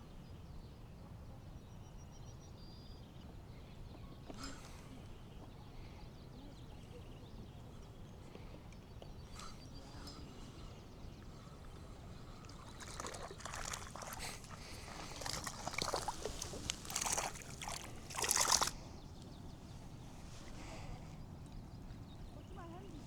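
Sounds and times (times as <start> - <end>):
water splashing and sloshing: 11.6 - 18.8.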